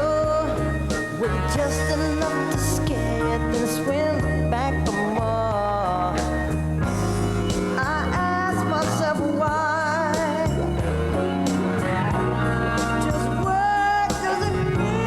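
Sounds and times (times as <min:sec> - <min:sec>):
steady bass line: 0:00.0 - 0:15.0
vibrato singing voice: 0:00.0 - 0:15.0.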